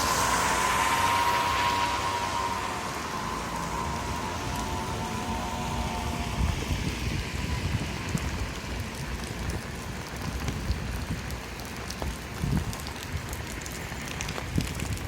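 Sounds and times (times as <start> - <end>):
rain falling on a street: 0.0 - 15.0.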